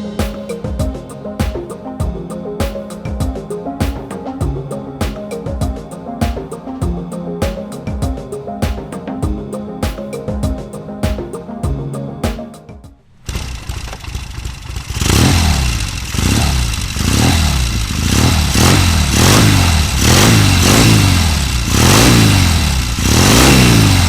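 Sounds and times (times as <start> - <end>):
motorcycle engine revving: 13.3 - 24.0.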